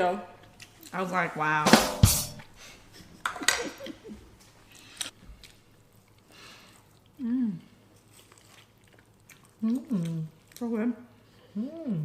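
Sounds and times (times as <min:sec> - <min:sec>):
person humming: 0:11.6 - 0:12.0.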